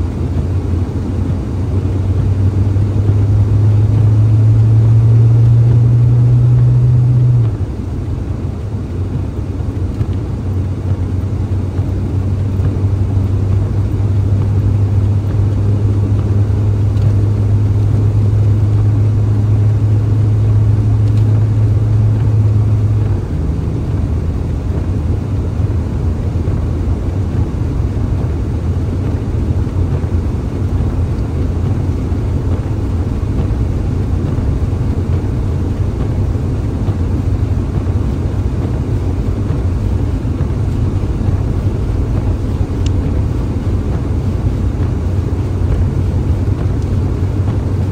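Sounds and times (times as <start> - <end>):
engine and road drone: 0.0 - 47.9.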